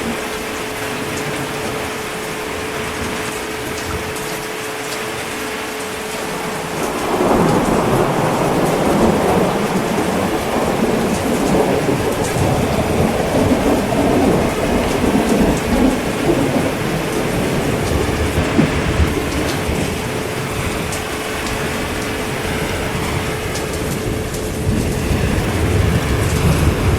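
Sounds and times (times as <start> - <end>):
heavy rain: 0.0 - 26.9
thunder rumbling: 0.0 - 26.9.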